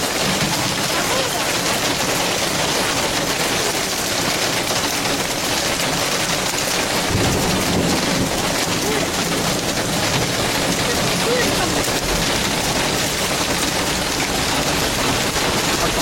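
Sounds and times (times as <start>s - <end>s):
heavy rain pouring: 0.0s - 16.0s
thunder rumbling: 5.0s - 16.0s.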